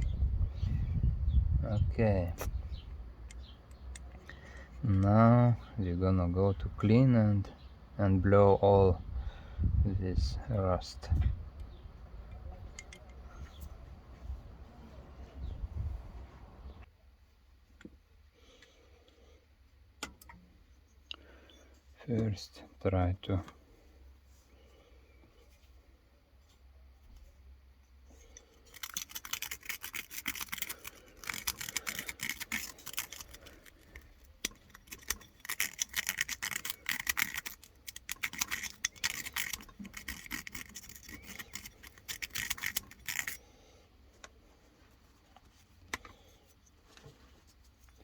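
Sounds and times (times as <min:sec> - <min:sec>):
scraping strokes on metal: 0:28.1 - 0:43.5.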